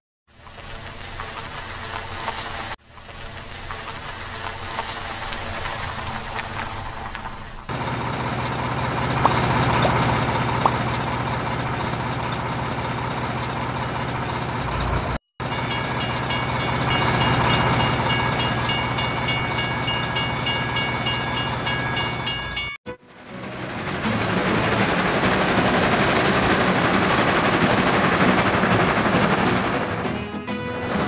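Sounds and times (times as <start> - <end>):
train rumbling: 0.3 - 31.0
high steady tones: 15.4 - 22.8.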